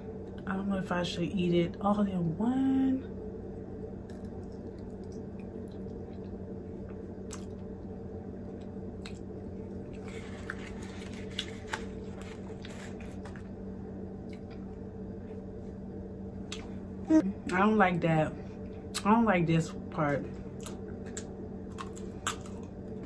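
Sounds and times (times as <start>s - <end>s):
steady low hum: 0.0s - 23.0s
chewing with wet clicks: 4.0s - 7.9s, 8.5s - 9.3s, 20.6s - 22.8s
crunching wafer: 9.9s - 13.5s.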